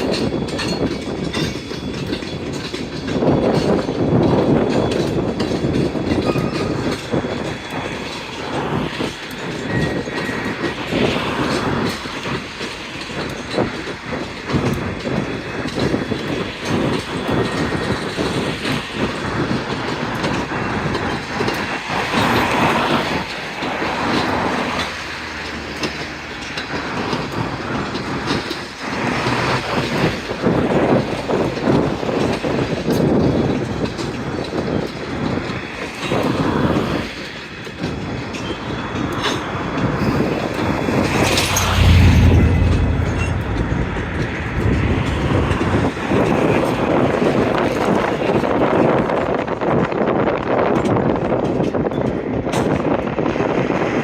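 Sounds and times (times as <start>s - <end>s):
freight train wheels clicking over rails: 37.8s - 48.4s.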